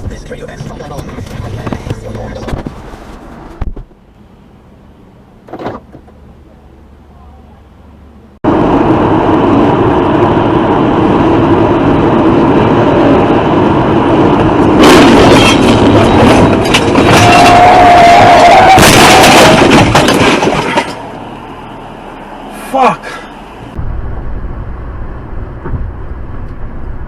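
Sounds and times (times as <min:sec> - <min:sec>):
rush of vehicle noise: 0:00.0 - 0:27.0
vehicle crashing and scraping: 0:14.7 - 0:21.3.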